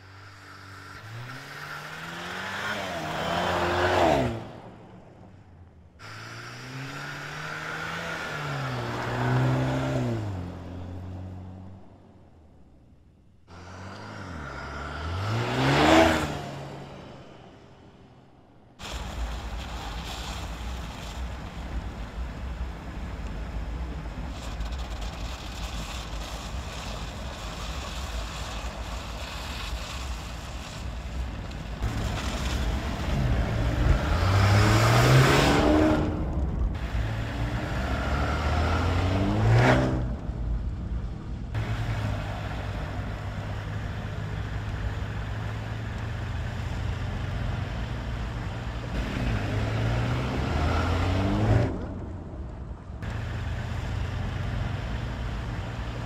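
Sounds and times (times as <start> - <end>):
low drone of car driving: 0.0 - 56.0
car engine accelerating hard: 13.5 - 17.3, 31.8 - 40.6, 41.5 - 52.1.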